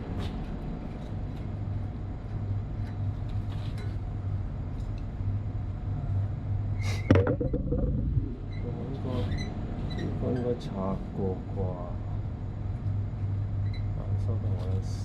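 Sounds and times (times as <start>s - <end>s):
machinery hum: 4.0s - 15.0s
sharp knock: 7.1s - 8.4s.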